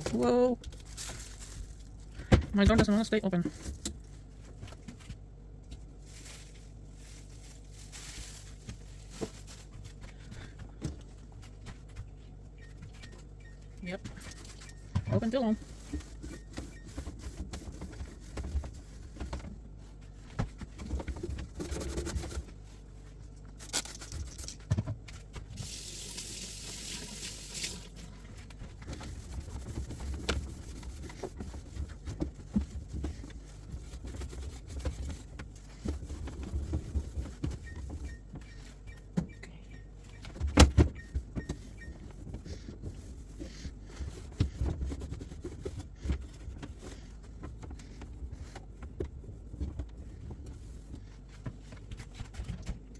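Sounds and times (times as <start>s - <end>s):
items being handled: 0.0s - 52.9s
refrigerator alarm beeps: 12.4s - 18.3s, 36.4s - 43.3s.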